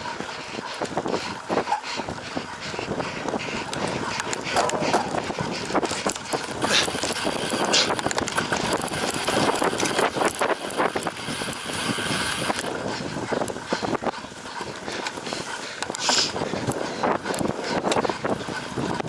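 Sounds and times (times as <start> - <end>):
bicycle rattling over rough ground: 0.0 - 19.0
wind noise on microphone: 0.0 - 19.0.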